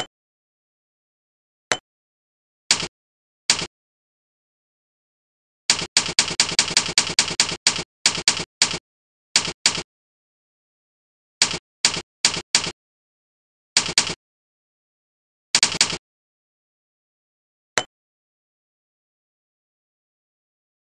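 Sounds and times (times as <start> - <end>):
typewriter key clacks: 15.6 - 16.0.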